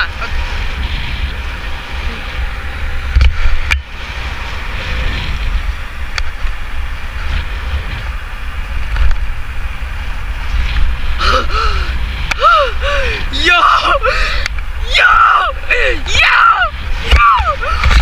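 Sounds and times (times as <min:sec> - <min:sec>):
bike road and tyre noise: 0:00.0 - 0:18.0
wind rumbling on microphone: 0:00.0 - 0:18.0
person shouting: 0:12.4 - 0:14.2, 0:14.8 - 0:17.8.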